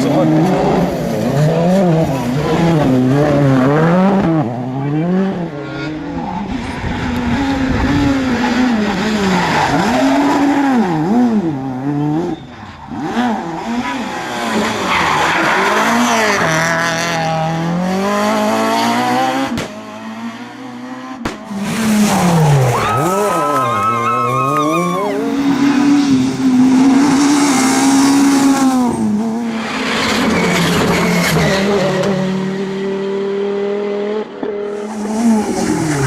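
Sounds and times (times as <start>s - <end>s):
rally car engines revving: 0.0s - 36.0s.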